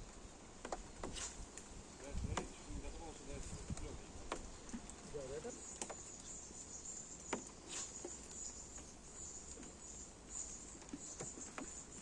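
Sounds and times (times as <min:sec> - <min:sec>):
insects chirring: 0:04.3 - 0:12.0.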